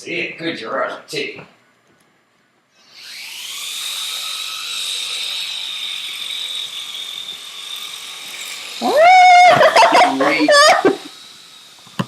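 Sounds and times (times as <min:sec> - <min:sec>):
toy airplane motor whine: 0:02.8 - 0:12.0.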